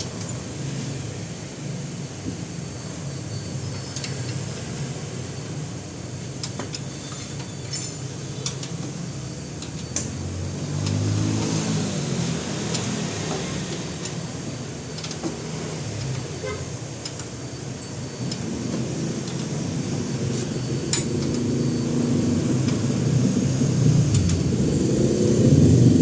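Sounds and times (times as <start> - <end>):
vehicle engine: 0.0 - 26.0
vehicle rumble: 0.0 - 26.0
hand tools clinking on metal: 6.4 - 8.8.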